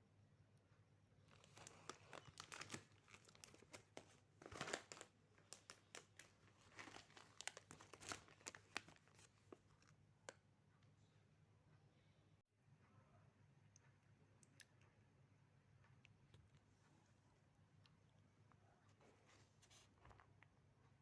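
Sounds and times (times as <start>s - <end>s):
plastic wrapper crinkling: 1.3s - 9.9s.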